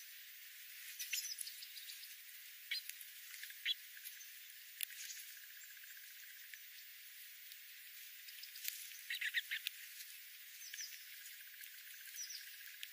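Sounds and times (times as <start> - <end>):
faint steady hiss: 0.0 - 12.9
high-pitched animal chirps: 9.1 - 9.7.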